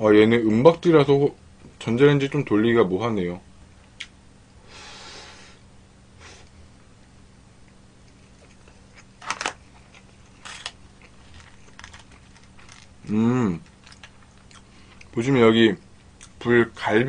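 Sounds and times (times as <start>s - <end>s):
person chewing food: 8.0s - 15.2s.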